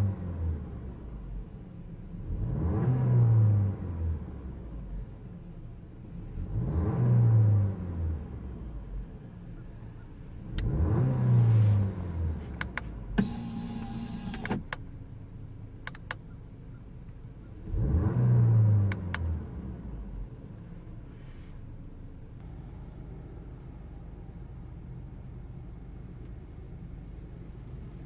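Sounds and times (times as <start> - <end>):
car engine revving: 2.2 - 4.0, 10.4 - 14.6, 17.6 - 20.4
car engine idling: 11.5 - 17.6, 19.6 - 28.0
sharp clicks: 15.8 - 16.2.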